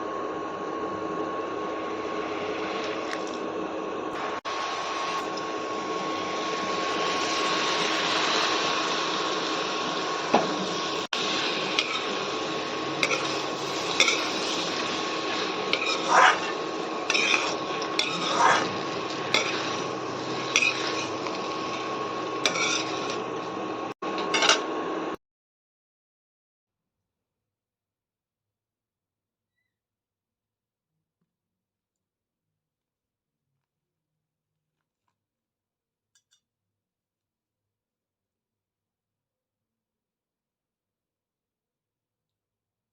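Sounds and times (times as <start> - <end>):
metal spoon scraping a pan: 11.8 - 12.2, 12.9 - 23.5, 24.2 - 24.7.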